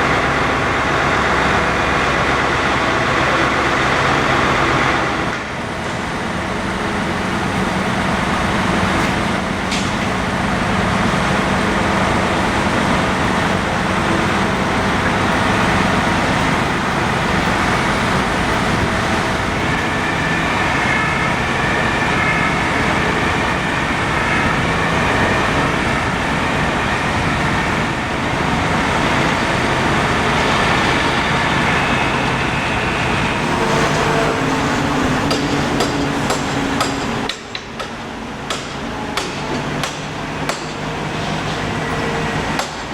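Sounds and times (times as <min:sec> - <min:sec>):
diesel engine: 0:00.0 - 0:42.9
road traffic: 0:00.0 - 0:42.9
high thin whine: 0:05.4 - 0:37.6.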